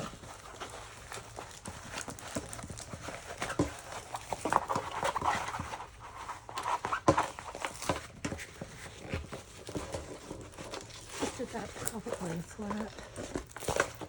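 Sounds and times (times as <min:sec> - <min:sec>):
canvas rustling and crinkling: 0:00.0 - 0:14.0.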